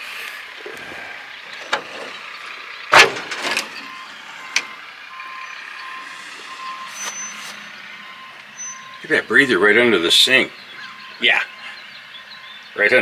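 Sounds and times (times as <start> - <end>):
truck yard noise: 0.0 - 13.0
reversing beeper: 2.9 - 13.0.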